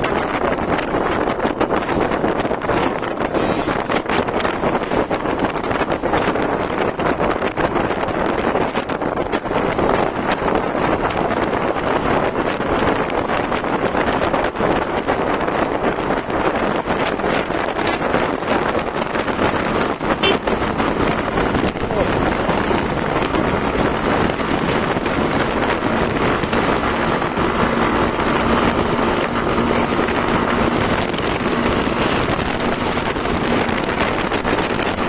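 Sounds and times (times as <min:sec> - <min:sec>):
wind rushing over microphone: 0:00.0 - 0:35.0
motorcycle engine running: 0:11.3 - 0:35.0.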